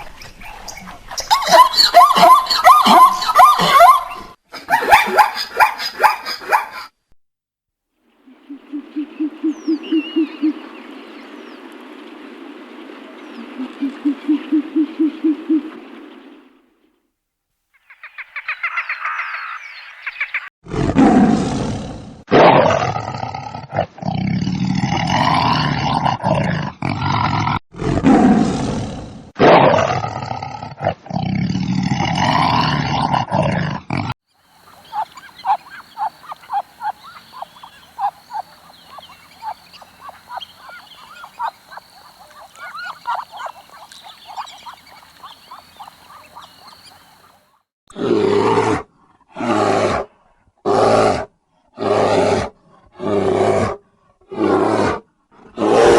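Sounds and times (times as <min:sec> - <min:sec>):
loud animal calls: 0:01.2 - 0:06.9, 0:34.4 - 0:48.7
quick rhythmic chirping: 0:34.5 - 0:47.4.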